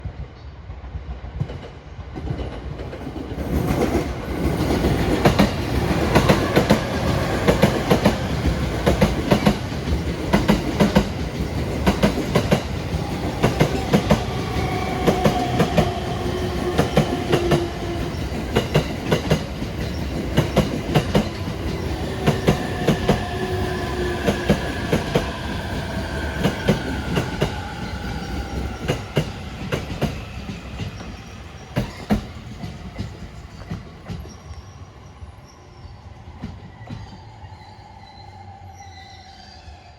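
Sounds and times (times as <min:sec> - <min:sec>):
train wheels clacking over rail joints: 0:01.5 - 0:23.4, 0:26.4 - 0:34.4.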